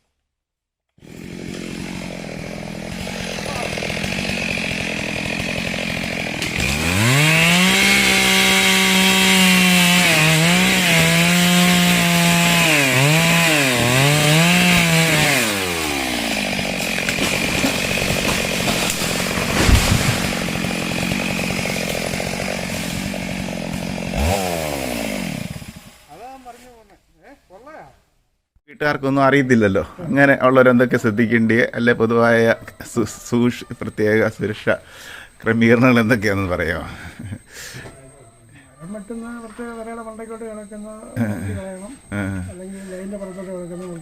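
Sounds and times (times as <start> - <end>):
chainsaw revving: 1.0 - 26.1
thump: 19.5 - 20.2.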